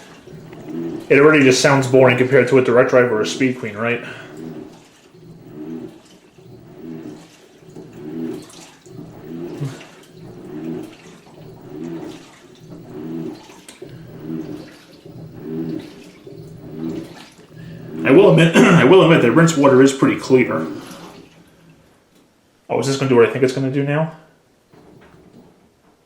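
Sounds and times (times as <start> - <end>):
water swishing in tub: 0.0 - 22.4
washer motor humming in strokes: 0.0 - 23.4, 24.6 - 25.8.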